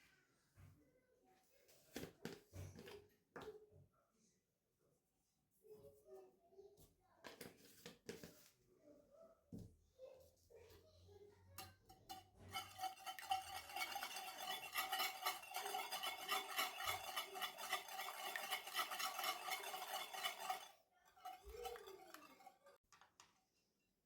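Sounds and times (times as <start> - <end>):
faint scrape: 11.6 - 22.8
whisking in a mixing bowl: 11.6 - 22.8.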